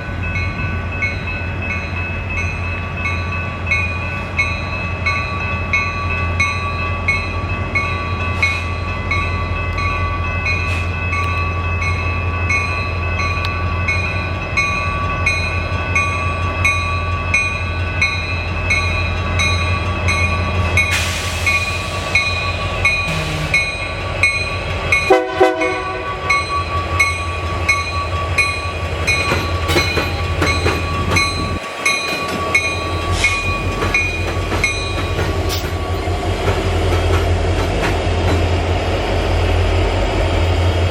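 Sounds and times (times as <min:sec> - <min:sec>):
train rumbling past: 0:00.0 - 0:40.9
multi-tone train horn: 0:23.0 - 0:23.8, 0:25.1 - 0:26.5.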